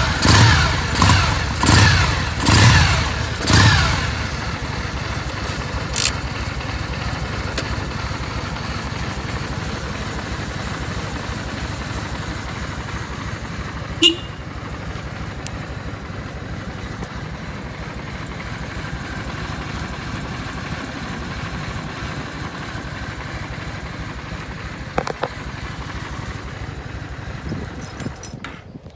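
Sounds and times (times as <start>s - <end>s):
motorcycle engine idling: 0.0s - 28.9s
small knocks: 25.0s - 25.4s.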